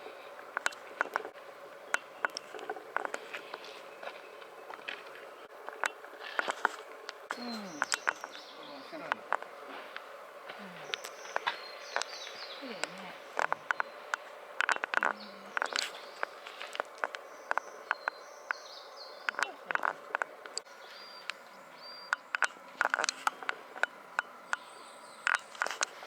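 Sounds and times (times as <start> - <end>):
high bird calls: 0.0 - 26.0
sharp clicks and ticks: 0.5 - 8.4, 10.9 - 18.6, 22.1 - 26.0.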